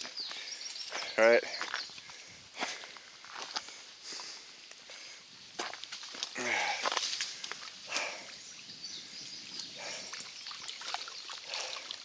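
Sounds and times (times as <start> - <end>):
footsteps crunching on rocky trail: 0.0 - 8.3.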